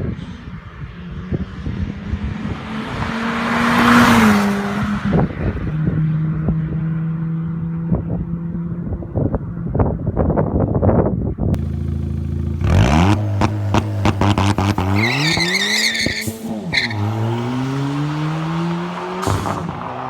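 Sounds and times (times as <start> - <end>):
exhaust crackling pops: 11.6 - 17.4, 18.2 - 20.0
car engine exhaust note: 11.6 - 20.0.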